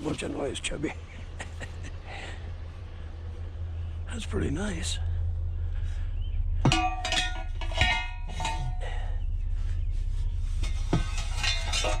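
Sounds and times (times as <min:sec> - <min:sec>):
low steady hum: 0:00.0 - 0:12.0
scrap metal clanking: 0:06.5 - 0:12.0.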